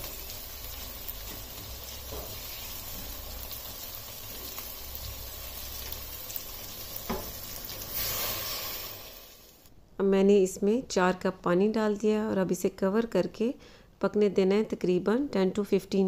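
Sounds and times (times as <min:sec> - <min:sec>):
vegetables sizzling in oil: 0:00.0 - 0:09.7.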